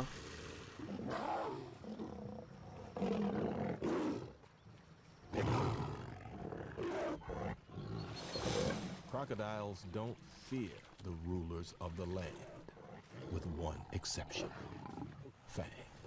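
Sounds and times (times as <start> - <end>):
lions growling: 0.7 - 4.4, 5.3 - 9.1, 12.1 - 15.4.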